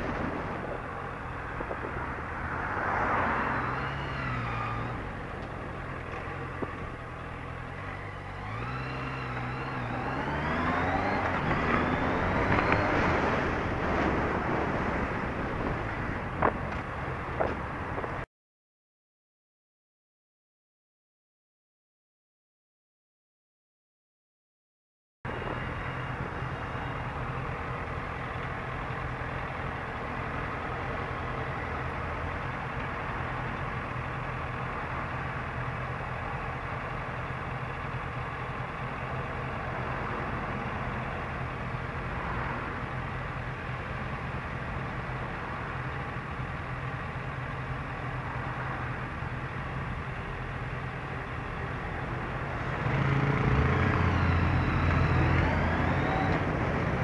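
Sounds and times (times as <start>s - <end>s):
traffic engines: 0.0s - 18.3s, 25.3s - 57.0s
motorcycle engine idling: 25.3s - 42.1s, 42.8s - 52.9s.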